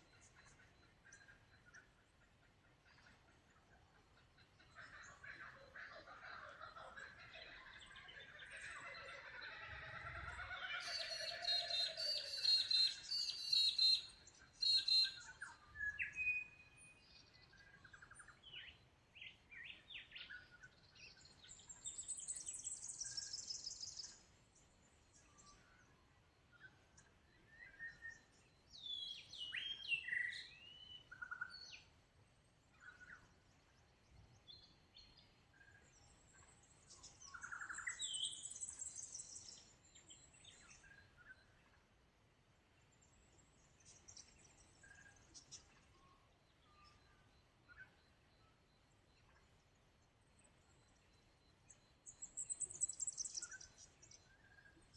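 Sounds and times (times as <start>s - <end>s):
birds chattering: 34.5s - 41.7s.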